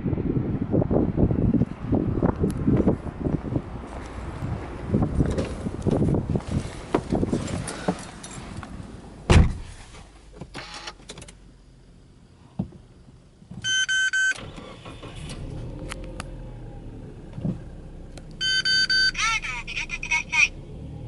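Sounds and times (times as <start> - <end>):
car engine starting and idling: 2.2 - 21.0
car door thumping shut: 9.3 - 9.8.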